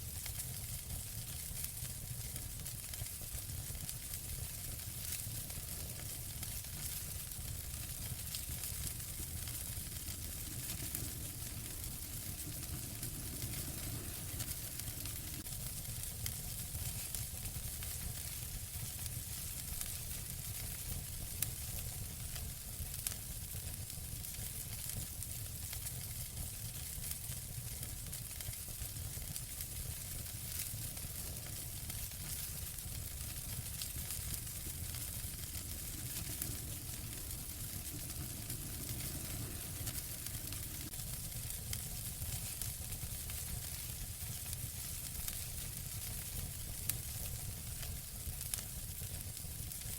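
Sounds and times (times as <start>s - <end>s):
wood fire crackling: 0.0s - 49.9s
fire sharp pops: 5.9s - 15.5s, 30.1s - 43.8s.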